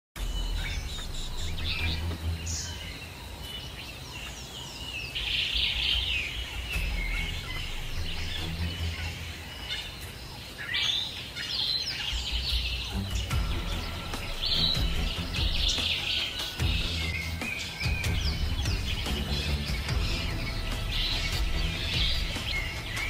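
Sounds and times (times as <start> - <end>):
low steady rumble: 0.2 - 3.0, 5.7 - 9.6
birds chirping and calling: 0.2 - 23.0.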